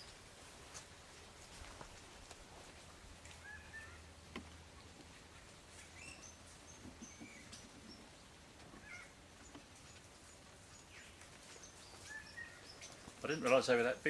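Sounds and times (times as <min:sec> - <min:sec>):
small birds chirping: 0:03.2 - 0:14.0.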